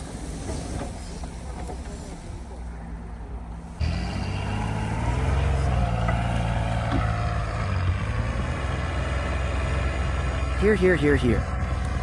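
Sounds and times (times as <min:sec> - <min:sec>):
truck engine drone: 0:00.0 - 0:12.0.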